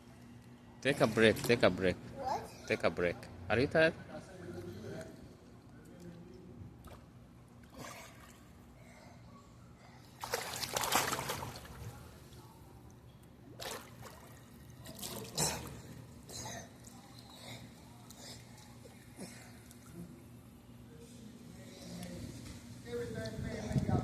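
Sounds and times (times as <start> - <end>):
water splashing: 10.2 - 12.0.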